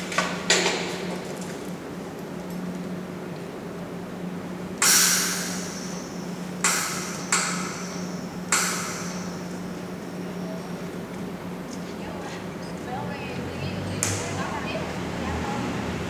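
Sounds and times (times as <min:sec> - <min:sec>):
steady low hum: 0:03.1 - 0:12.6.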